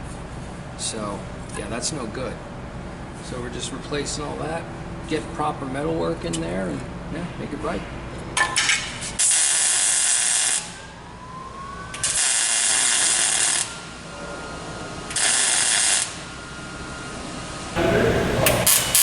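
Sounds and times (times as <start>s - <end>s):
welding hiss: 9.2s - 10.8s, 12.0s - 14.1s, 15.1s - 19.0s.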